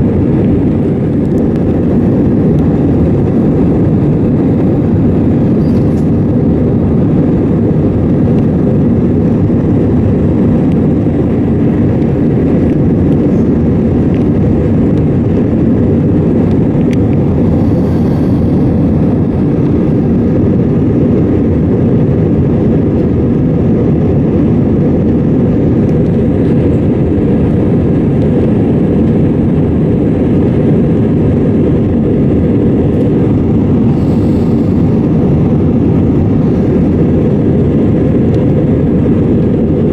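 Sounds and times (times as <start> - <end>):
airplane cabin engine roar: 0.0 - 39.9.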